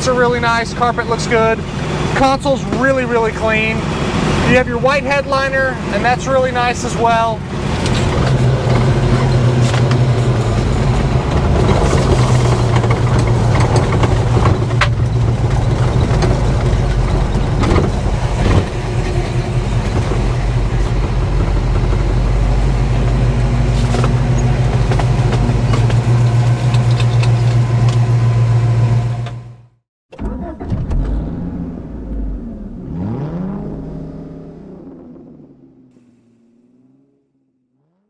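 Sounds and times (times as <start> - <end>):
car engine running: 0.0 - 29.8.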